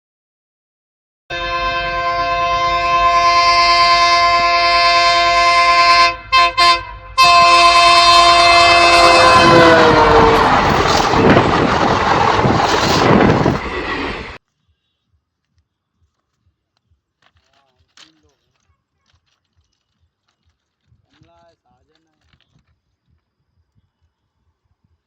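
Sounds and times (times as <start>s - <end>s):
train horn blowing: 1.3s - 11.5s
passing train rushing and clattering: 5.2s - 14.4s.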